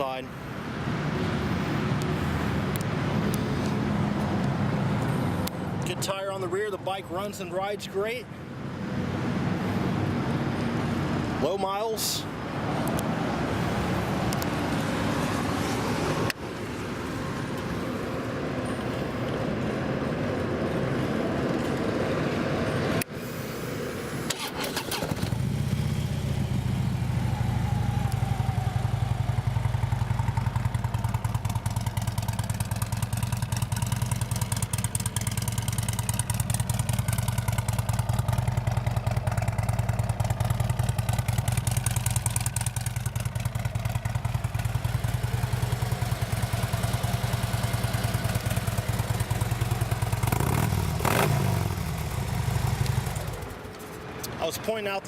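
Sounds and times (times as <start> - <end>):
motorcycle engine starting: 24.2 - 53.7
motorcycle engine idling: 25.3 - 53.7.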